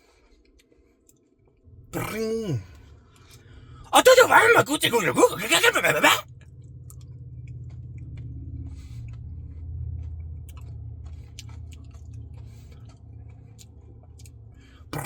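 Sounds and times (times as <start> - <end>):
low steady hum: 1.7 - 15.0
close chewing: 8.9 - 15.0
wet mouth clicks and smacks: 10.5 - 13.0.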